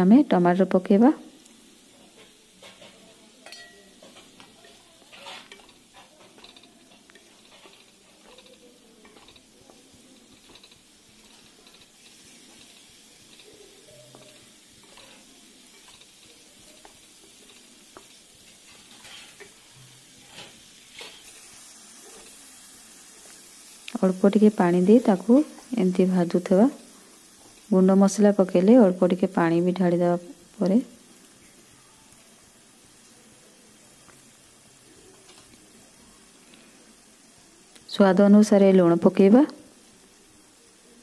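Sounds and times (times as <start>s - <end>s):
tomatoes sizzling faintly: 0.0s - 41.0s
spatula scraping a pan: 2.1s - 22.7s.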